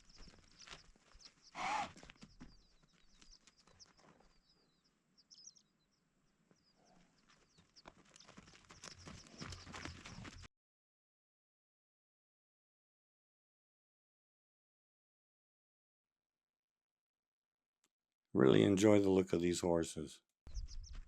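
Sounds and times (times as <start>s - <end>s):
small birds chirping: 0.0s - 10.5s, 20.5s - 21.0s
horse sound: 1.6s - 2.1s.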